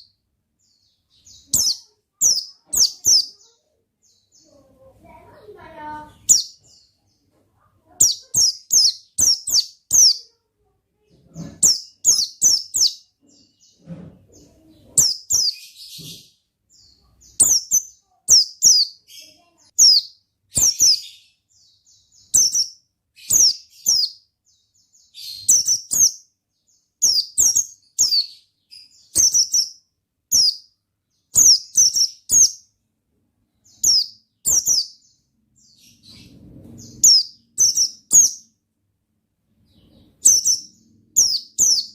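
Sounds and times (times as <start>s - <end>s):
bird chirping high sharp notes: 1.1s - 3.6s, 7.9s - 10.4s, 11.4s - 13.7s, 14.9s - 21.4s, 22.0s - 24.2s, 25.0s - 26.3s, 27.0s - 30.7s, 31.4s - 32.7s, 33.7s - 35.1s, 35.8s - 38.5s, 39.7s - 41.9s.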